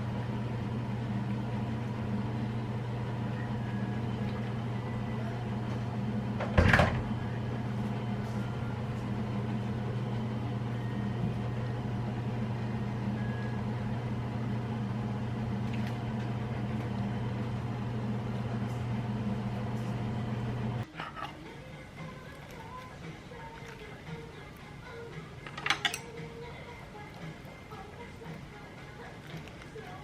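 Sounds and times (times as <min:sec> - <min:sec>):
kitchen appliance humming: 0:00.0 - 0:30.0
loud clunk: 0:06.4 - 0:07.1.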